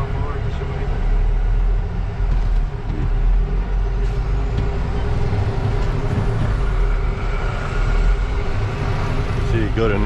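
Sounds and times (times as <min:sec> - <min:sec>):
truck diesel engine running: 0:00.0 - 0:10.0
manual gearbox shifting: 0:04.0 - 0:07.0.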